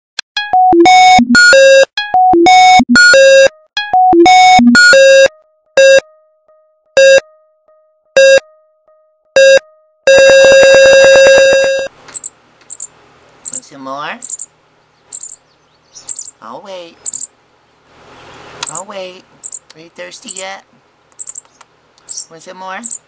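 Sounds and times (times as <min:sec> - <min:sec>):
synthesizer jingle beeping notes: 0:00.3 - 0:11.9.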